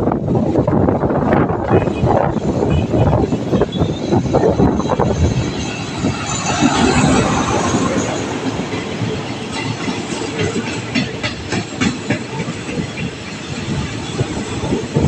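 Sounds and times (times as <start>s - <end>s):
train wheels clattering over rail joints: 3.2s - 15.0s.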